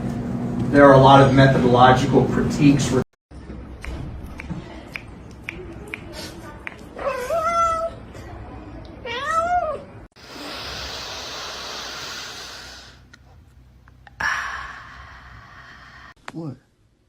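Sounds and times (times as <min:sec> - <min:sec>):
cat meowing: 0:07.0 - 0:08.0, 0:09.0 - 0:09.9.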